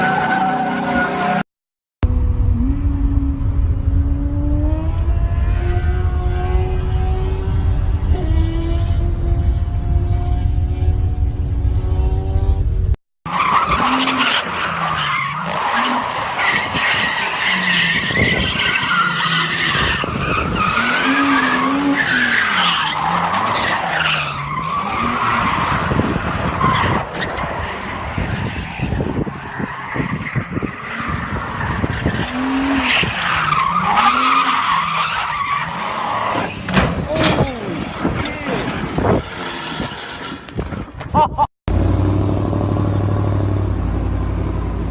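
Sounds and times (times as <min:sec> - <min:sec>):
car engine revving: 0:02.0 - 0:13.0, 0:41.7 - 0:44.9.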